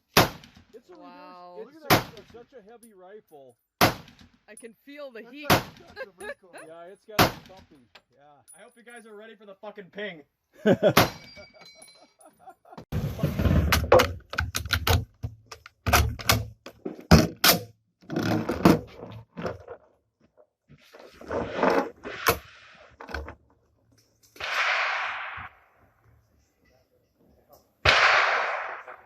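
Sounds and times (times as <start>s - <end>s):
rifle shots echoing: 24.4s - 25.7s, 27.8s - 29.0s.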